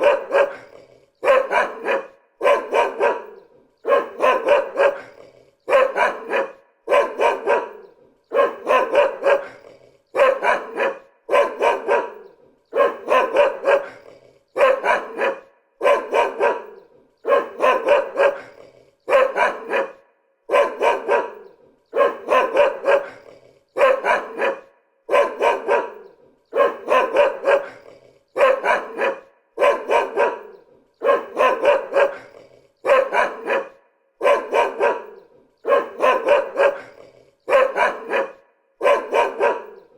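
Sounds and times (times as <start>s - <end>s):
dog barking: 0.0s - 39.9s.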